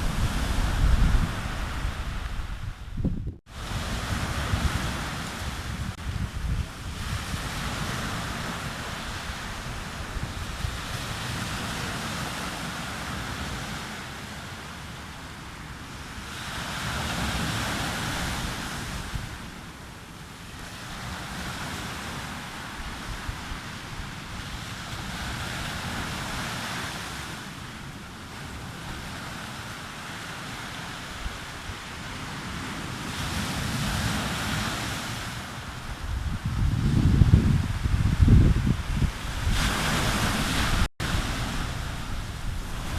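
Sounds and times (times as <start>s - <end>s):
sea waves breaking on beach: 0.0s - 2.8s, 3.5s - 42.9s
wind buffeting microphone: 0.0s - 12.2s, 35.6s - 42.9s.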